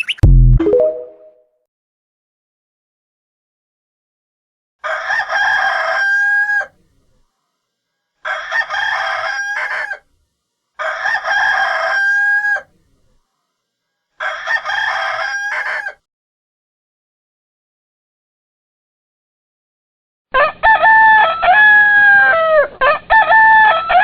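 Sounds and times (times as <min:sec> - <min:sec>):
rooster crowing: 0:04.8 - 0:06.8, 0:08.2 - 0:10.0, 0:10.8 - 0:12.7, 0:14.2 - 0:16.1, 0:20.4 - 0:24.0.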